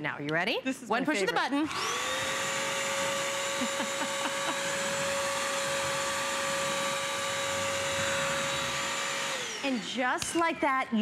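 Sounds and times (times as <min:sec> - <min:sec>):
wet vacuum whining: 0:01.6 - 0:10.7.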